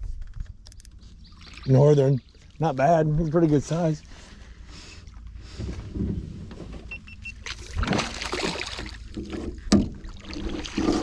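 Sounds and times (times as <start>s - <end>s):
water splashing against boat: 5.5s - 11.0s.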